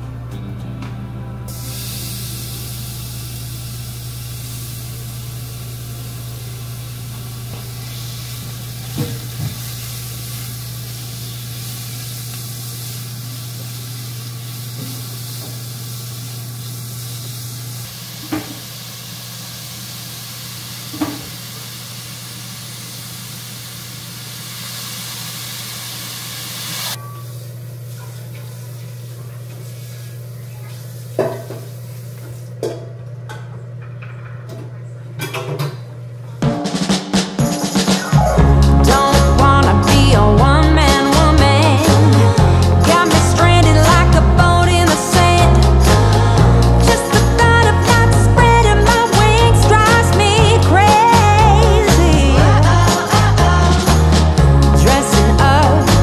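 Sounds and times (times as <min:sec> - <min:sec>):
steady low hum: 0:00.0 - 0:26.1
chicken sizzling in a pot: 0:01.5 - 0:32.5.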